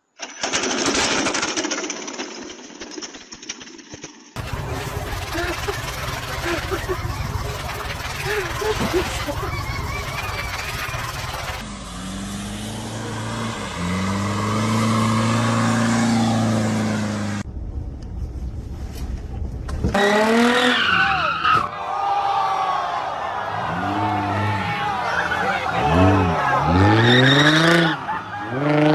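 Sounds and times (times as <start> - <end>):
tyres squealing: 4.4 - 11.6
car engine and road hum: 4.4 - 21.0.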